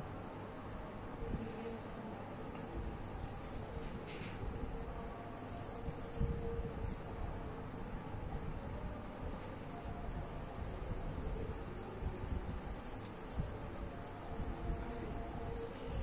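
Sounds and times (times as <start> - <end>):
colouring tool rubbing on paper: 5.4 - 7.1, 8.1 - 16.0.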